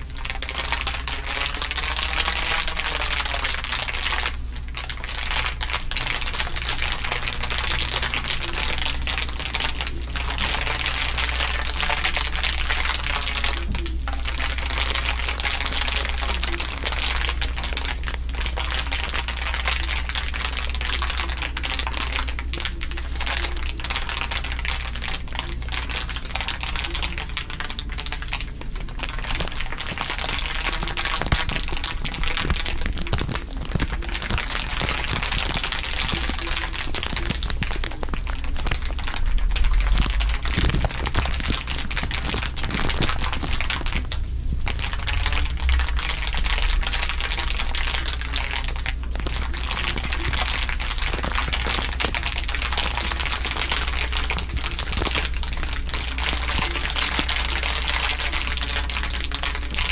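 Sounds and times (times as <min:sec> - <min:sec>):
dense crinkling crackle: 0:00.0 - 0:59.9
low hum: 0:25.2 - 0:55.9.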